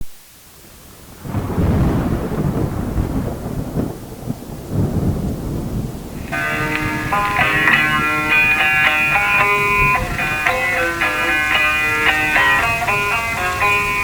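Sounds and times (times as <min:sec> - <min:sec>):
steady rain: 0:00.1 - 0:14.0
low rolling thunder: 0:01.2 - 0:07.1
plucked guitar music: 0:06.2 - 0:14.0.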